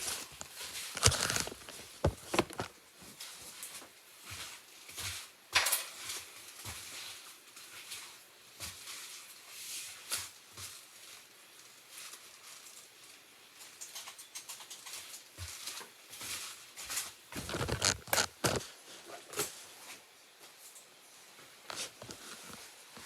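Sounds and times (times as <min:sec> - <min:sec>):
knife carving soap: 0:00.0 - 0:02.7.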